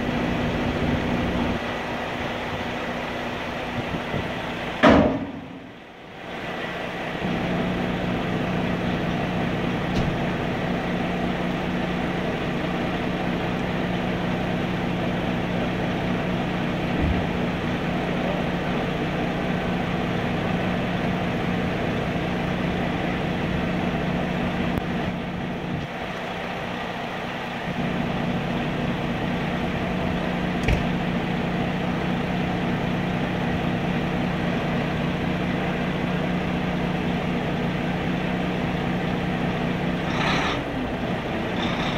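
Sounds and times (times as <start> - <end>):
truck engine idling: 0.0 - 41.9.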